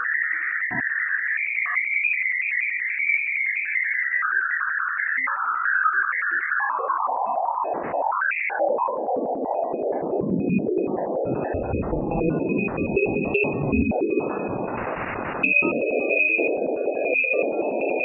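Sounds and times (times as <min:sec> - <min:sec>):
electronic pulsing tone: 0:00.0 - 0:01.3, 0:05.2 - 0:18.0.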